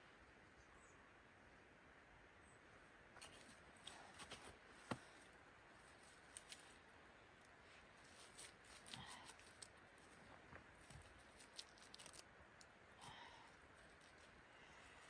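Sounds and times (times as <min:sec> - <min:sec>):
soft rustle: 0:03.2 - 0:15.0
faint small clicks and ticks: 0:07.4 - 0:14.4.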